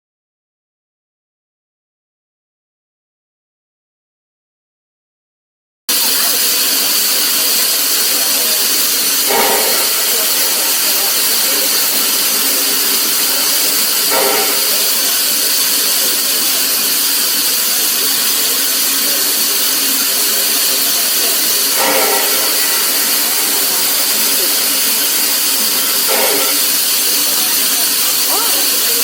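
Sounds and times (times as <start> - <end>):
hiss of escaping steam: 5.9 - 29.0.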